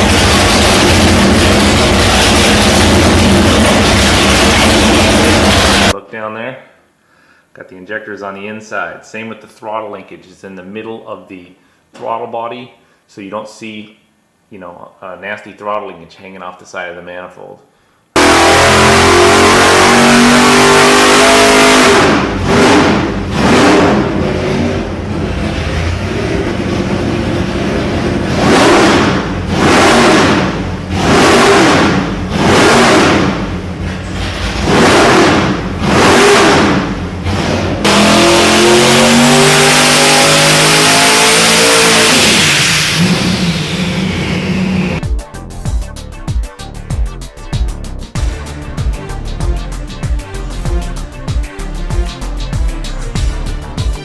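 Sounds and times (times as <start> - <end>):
car engine revving: 0.0 - 6.0, 18.2 - 45.0.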